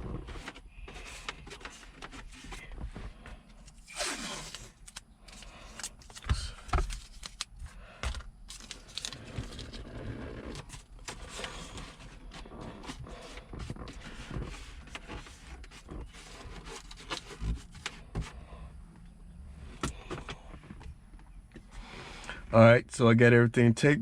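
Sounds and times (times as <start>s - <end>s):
clothing rustling against car interior: 8.5s - 18.5s.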